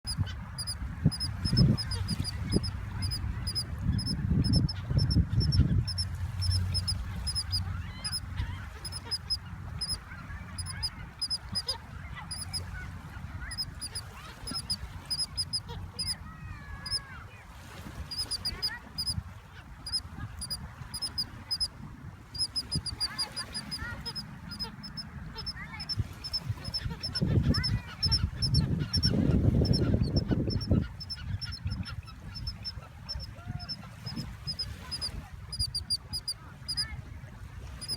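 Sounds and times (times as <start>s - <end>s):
high double tick: 0.0s - 8.2s, 8.8s - 10.0s, 13.5s - 16.1s, 18.1s - 19.2s, 22.4s - 31.7s
small birds calling and squabbling: 0.1s - 12.7s, 13.4s - 16.2s, 18.1s - 21.7s, 22.4s - 36.8s.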